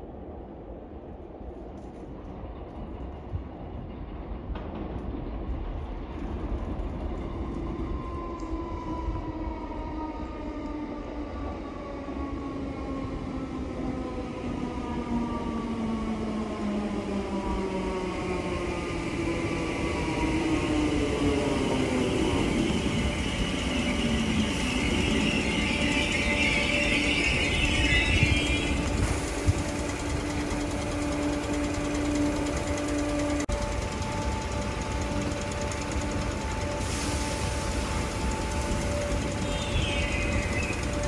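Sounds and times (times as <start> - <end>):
train wheels rumbling: 0.0 - 41.0
train motor whine: 18.1 - 41.0.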